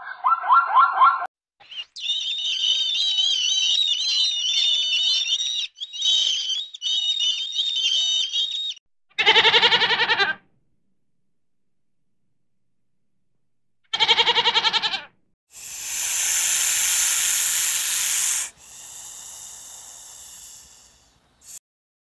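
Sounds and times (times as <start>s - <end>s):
high-pitched bird twittering: 0.0s - 8.8s
goat bleating: 9.2s - 10.4s, 13.9s - 15.1s.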